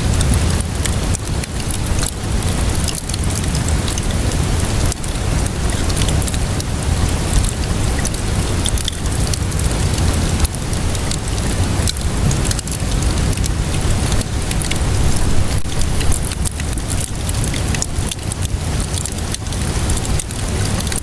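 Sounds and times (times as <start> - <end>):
steady rainfall: 0.0 - 21.0.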